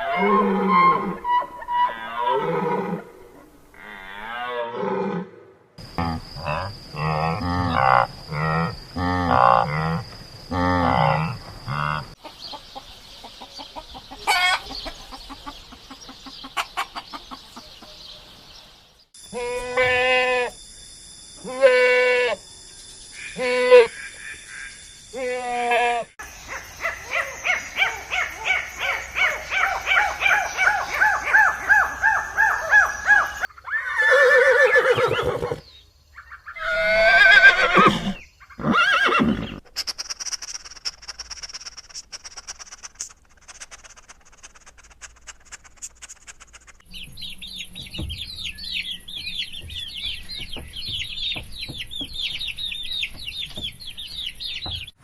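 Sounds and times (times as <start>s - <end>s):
loud drawn-out animal calls: 0.0s - 12.2s
high chirping birdsong: 11.4s - 19.2s, 26.1s - 42.5s, 46.6s - 55.0s
hen clucking: 11.7s - 18.0s
bleating calls: 19.3s - 20.6s, 21.4s - 22.4s, 25.2s - 26.2s.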